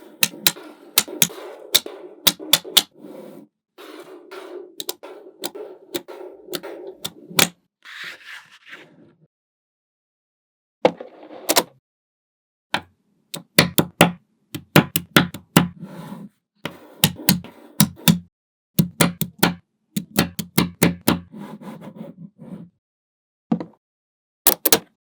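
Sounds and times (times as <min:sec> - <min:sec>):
magnetic balls clicking together: 0:00.2 - 0:02.9, 0:18.8 - 0:21.1.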